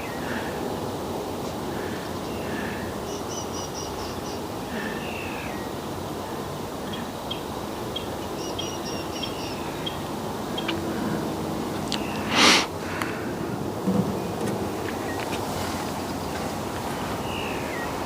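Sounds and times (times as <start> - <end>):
background rush: 0.0 - 3.3, 3.9 - 18.0
small bird chirping: 6.9 - 10.8.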